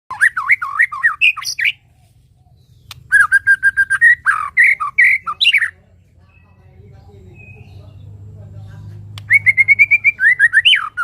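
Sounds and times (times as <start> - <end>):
bird singing whistles: 0.1 - 1.8, 2.7 - 5.8, 9.2 - 11.0.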